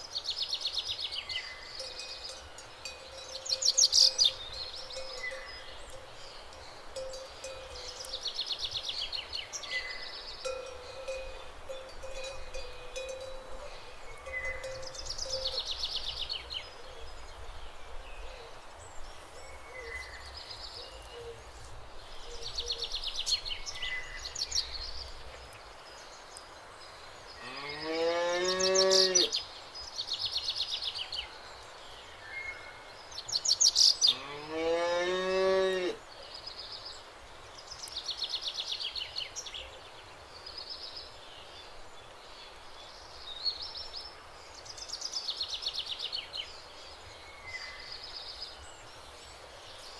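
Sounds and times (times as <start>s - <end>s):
birds chirping: 0.0s - 49.9s
cow mooing: 34.1s - 36.0s.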